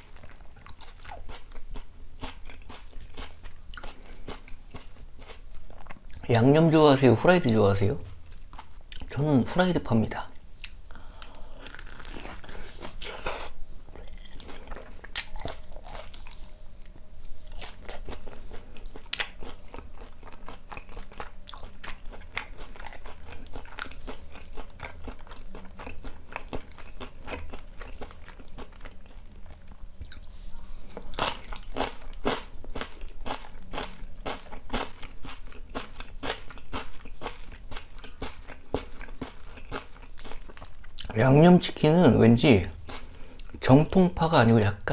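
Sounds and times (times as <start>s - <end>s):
crispy chicken crunching: 11.6s - 16.4s, 17.4s - 41.2s.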